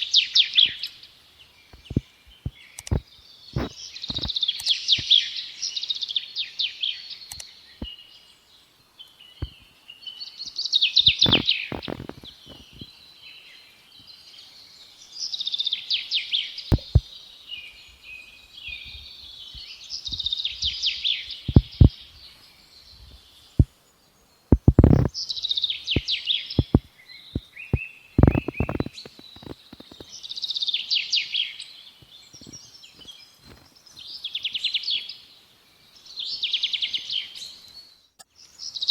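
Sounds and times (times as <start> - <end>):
sharp clicks and knocks: 1.7 - 3.0, 16.7 - 17.1, 24.5 - 25.1, 26.0 - 26.9
songbird trilling: 10.2 - 12.8, 24.6 - 31.7.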